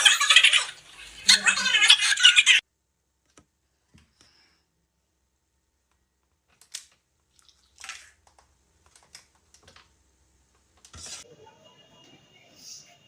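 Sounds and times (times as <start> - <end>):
faint clicks and taps: 3.2 - 4.4, 8.2 - 11.0.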